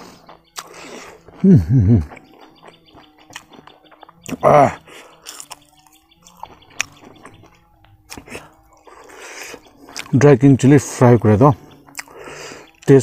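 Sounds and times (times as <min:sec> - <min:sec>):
chewing: 0:00.0 - 0:10.2, 0:11.0 - 0:13.0
wet mouth clicks and lip smacks: 0:00.3 - 0:01.4, 0:02.1 - 0:04.4, 0:08.1 - 0:08.4, 0:09.9 - 0:10.2, 0:11.9 - 0:12.2
person humming: 0:01.3 - 0:02.3.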